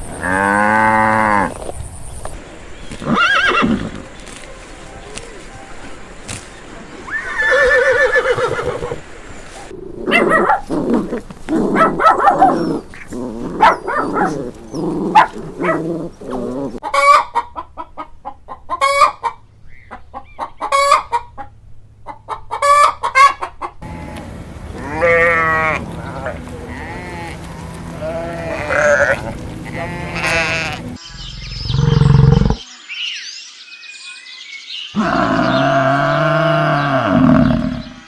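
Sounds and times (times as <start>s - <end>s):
hens clucking: 9.7s - 21.4s, 22.1s - 31.0s, 35.0s - 37.8s.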